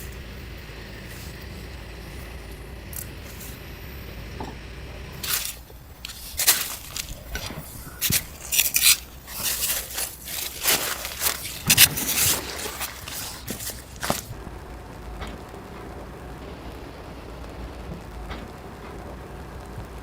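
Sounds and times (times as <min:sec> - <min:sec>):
scraping and rubbing handling: 0:05.2 - 0:14.4.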